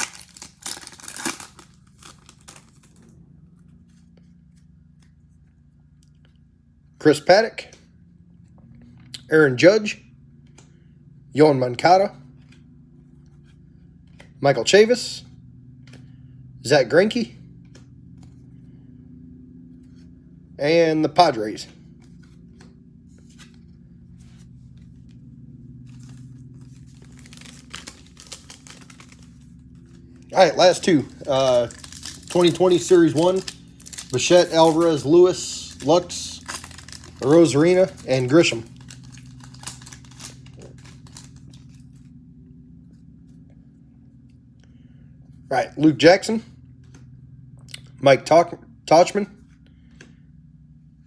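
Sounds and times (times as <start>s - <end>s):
wrapper tearing and crinkling: 0.0s - 3.1s, 25.9s - 41.9s
steady low hum: 0.0s - 51.0s.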